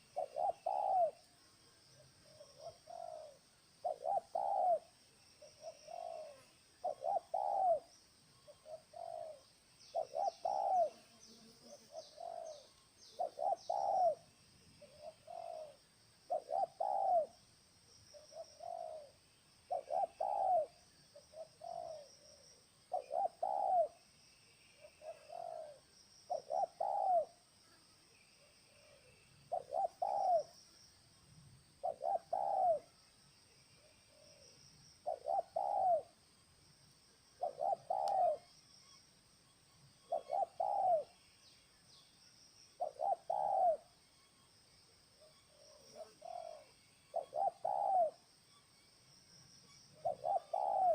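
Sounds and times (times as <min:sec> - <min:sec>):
doves cooing: 0:00.0 - 0:01.2, 0:02.2 - 0:07.9, 0:08.5 - 0:11.0, 0:11.6 - 0:14.2, 0:14.8 - 0:17.4, 0:18.1 - 0:24.0, 0:24.9 - 0:27.4, 0:28.7 - 0:30.5, 0:31.8 - 0:32.9, 0:34.1 - 0:36.1, 0:37.4 - 0:38.4, 0:40.1 - 0:41.1, 0:42.8 - 0:43.9, 0:45.5 - 0:48.2, 0:50.0 - 0:50.9
small bird chirping: 0:02.3 - 0:14.2, 0:19.7 - 0:24.0, 0:24.8 - 0:27.4, 0:28.8 - 0:30.8, 0:33.8 - 0:36.2, 0:37.3 - 0:39.1, 0:39.9 - 0:43.9, 0:49.6 - 0:50.9.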